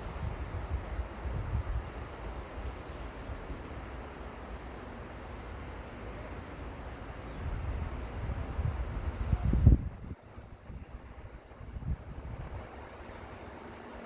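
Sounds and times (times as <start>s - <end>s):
wind buffeting microphone: 0.0s - 2.0s, 7.3s - 12.9s
river water running: 0.0s - 14.0s.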